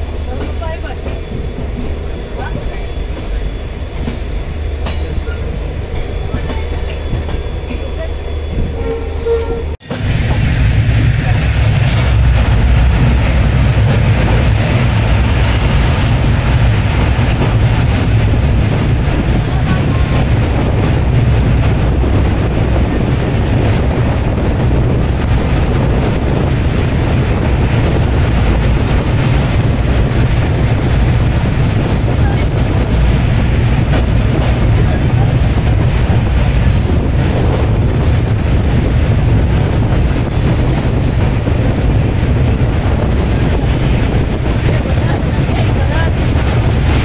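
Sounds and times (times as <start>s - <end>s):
train wheels rumbling on rails: 0.0s - 47.0s
high wheel squeals: 7.0s - 9.8s.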